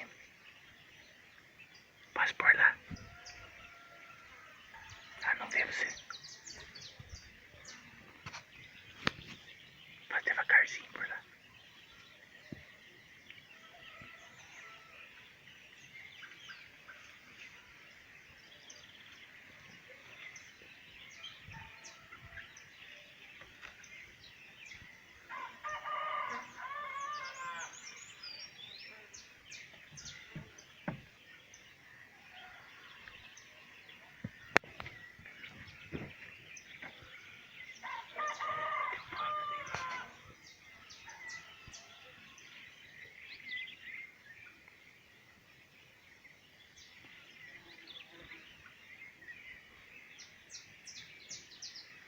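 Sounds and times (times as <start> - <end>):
rooster crowing: 25.3 - 27.9, 37.8 - 40.2.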